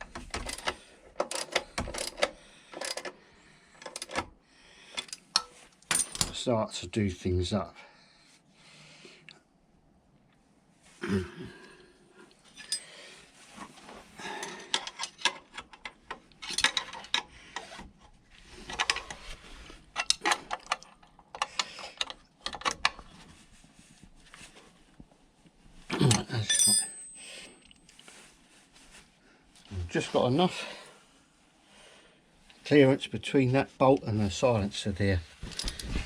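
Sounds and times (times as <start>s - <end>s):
metal tools clinking: 5.0s - 6.4s, 12.5s - 13.0s, 14.3s - 17.3s, 26.1s - 27.9s, 35.4s - 36.0s.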